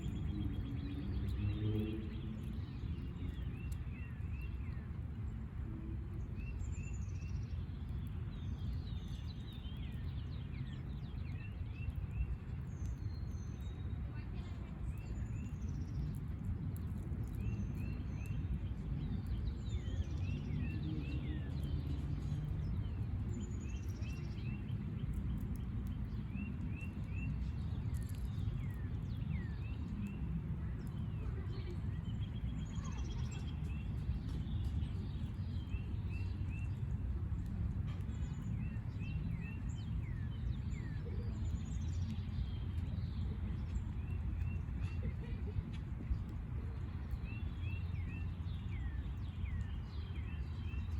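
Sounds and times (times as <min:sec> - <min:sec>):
songbirds chirping: 0:00.0 - 0:50.9
steady low rumble: 0:00.0 - 0:50.9.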